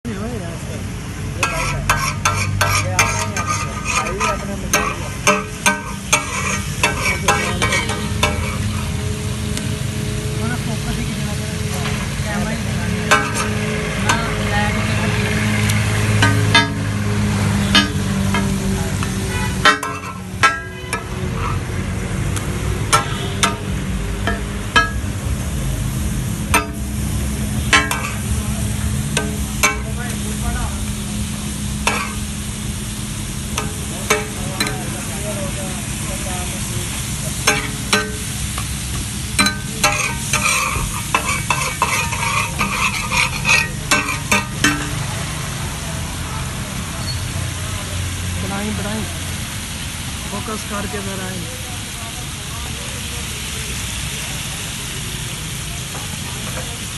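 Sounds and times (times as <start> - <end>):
chicken sizzling on a griddle: 0.1 - 56.9
metal spatulas clanking: 1.4 - 8.9, 13.1 - 14.5, 16.1 - 17.0, 17.6 - 21.6, 22.9 - 25.2, 26.5 - 27.0, 27.6 - 28.4, 29.1 - 30.2, 31.8 - 32.2, 33.6 - 35.0, 37.4 - 38.3, 39.4 - 45.1.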